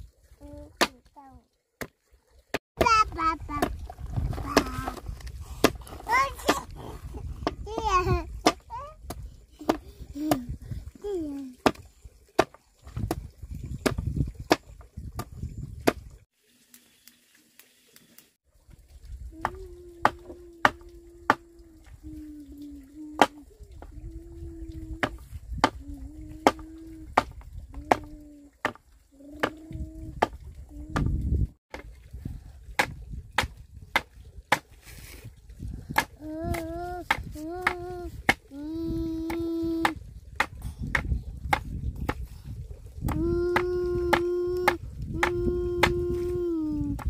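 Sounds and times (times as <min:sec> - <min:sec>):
blade chopping wood: 0:12.4 - 0:13.2, 0:32.8 - 0:34.7.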